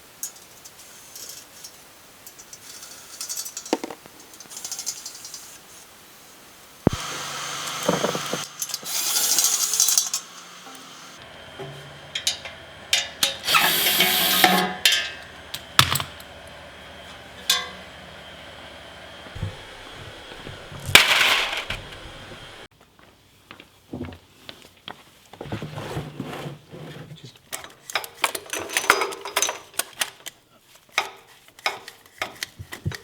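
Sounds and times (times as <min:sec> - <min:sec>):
power tool bursts: 0:06.9 - 0:11.2, 0:13.2 - 0:14.9, 0:19.4 - 0:22.7.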